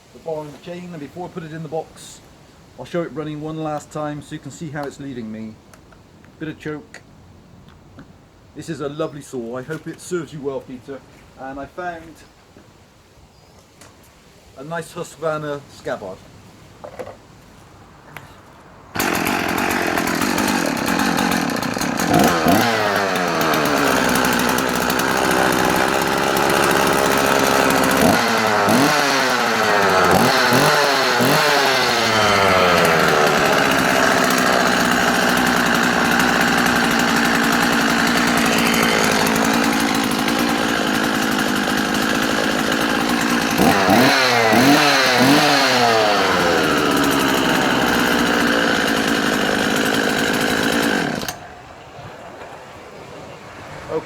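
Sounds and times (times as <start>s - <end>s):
chainsaw engine idling and revving: 19.0s - 51.4s.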